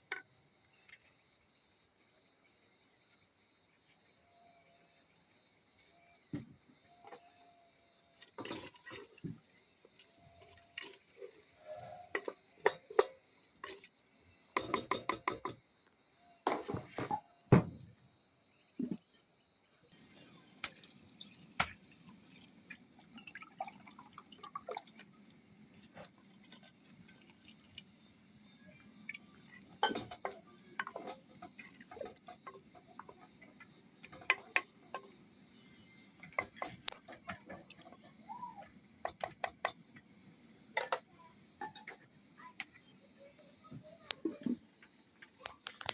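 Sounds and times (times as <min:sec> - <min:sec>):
insects chirping: 0:00.0 - 0:45.9
pots and dishes clinking: 0:10.8 - 0:13.9, 0:14.5 - 0:15.6, 0:29.1 - 0:33.2, 0:36.2 - 0:38.0
liquid sounds: 0:20.0 - 0:33.4.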